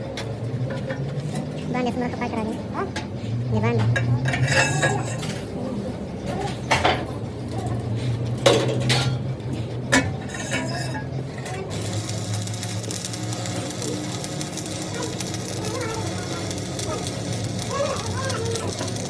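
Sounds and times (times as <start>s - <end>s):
metal objects clinking: 3.8s - 5.5s.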